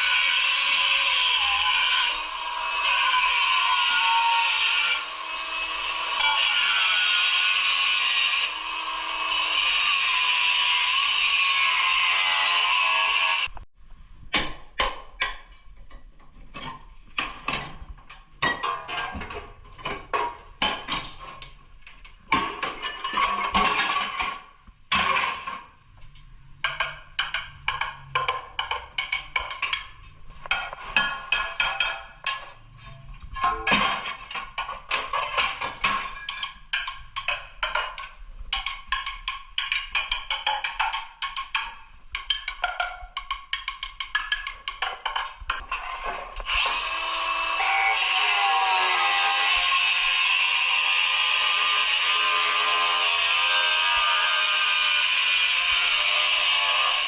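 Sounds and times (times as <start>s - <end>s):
power tool whining: 46.4s - 57.0s.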